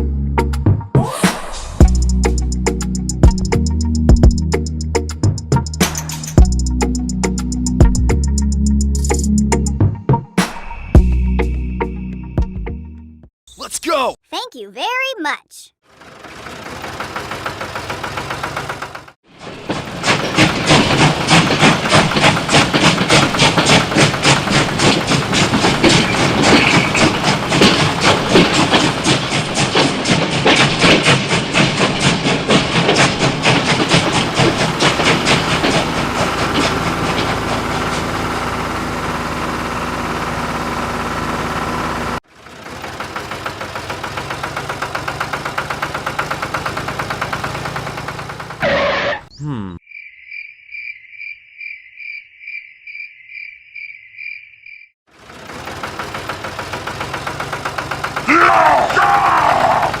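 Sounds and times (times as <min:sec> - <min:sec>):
engine chugging: 0:01.8 - 0:09.6, 0:15.8 - 0:49.3, 0:55.1 - 1:00.0.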